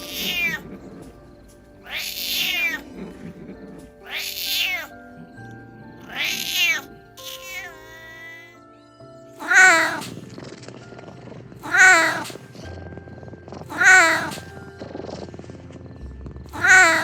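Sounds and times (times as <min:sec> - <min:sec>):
kitten meowing: 0:00.0 - 0:00.6, 0:01.9 - 0:02.8, 0:04.1 - 0:04.9, 0:06.1 - 0:08.4, 0:09.4 - 0:10.2, 0:11.6 - 0:12.4, 0:13.7 - 0:14.4, 0:16.5 - 0:17.0
soft background music: 0:00.0 - 0:17.0.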